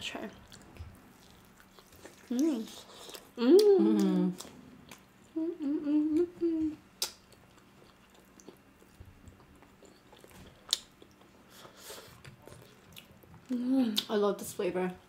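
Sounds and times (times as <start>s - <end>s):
person humming mmm: 2.3s - 4.6s, 5.3s - 7.1s
chewing and lip smacks: 7.0s - 13.4s.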